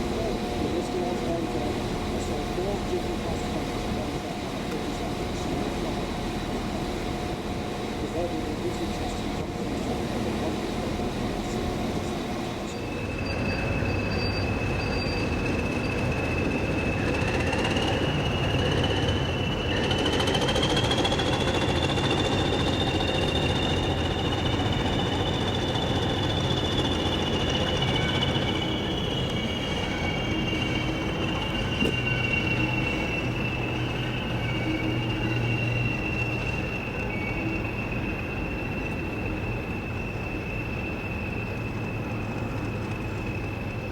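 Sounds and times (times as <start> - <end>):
train low rumble: 0.0 - 43.9
high-pitched squeal: 12.7 - 43.9.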